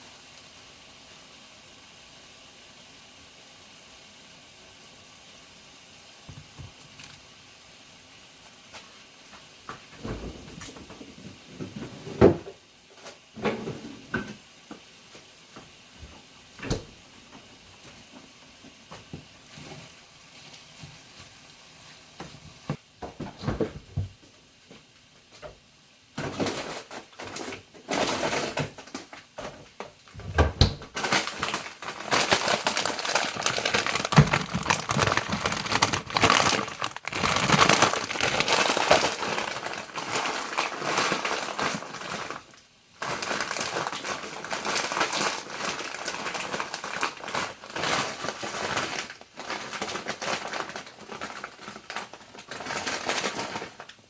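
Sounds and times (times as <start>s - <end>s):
faint steady hiss: 0.0s - 54.0s
objects being handled: 31.0s - 42.3s.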